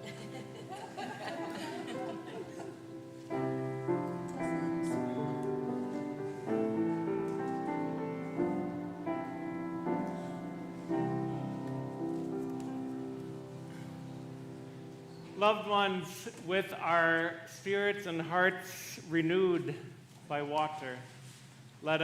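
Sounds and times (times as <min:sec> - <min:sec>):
piano playing slow chords: 0:00.0 - 0:16.1.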